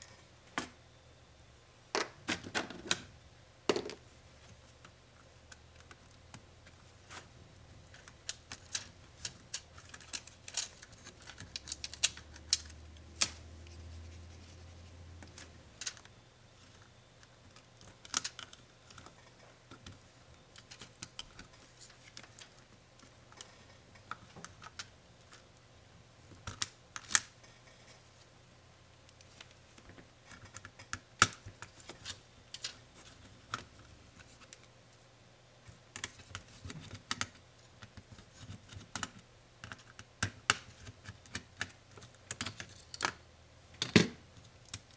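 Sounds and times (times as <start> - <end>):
faint low hum: 0.0 - 44.9
small tools clicking and tapping: 7.9 - 13.4, 36.0 - 43.2.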